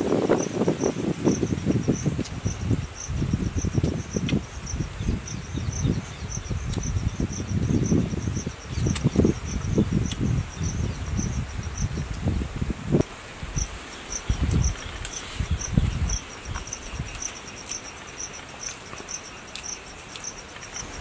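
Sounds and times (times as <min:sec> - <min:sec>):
insect chirping: 0:00.0 - 0:21.0
man chewing and gnawing a bone: 0:08.5 - 0:09.4, 0:10.0 - 0:10.3, 0:14.4 - 0:21.0.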